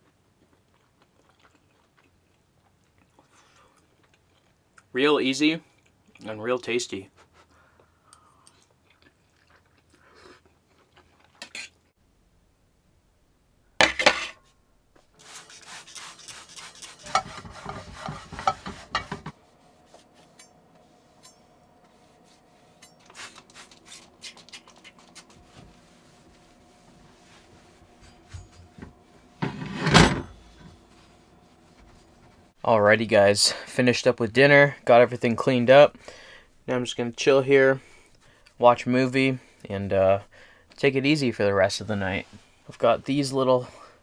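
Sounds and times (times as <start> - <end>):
scraping against a pan: 15.2 - 32.4
dishes and utensils clacking: 16.0 - 19.3
faint steady hum: 17.1 - 44.0.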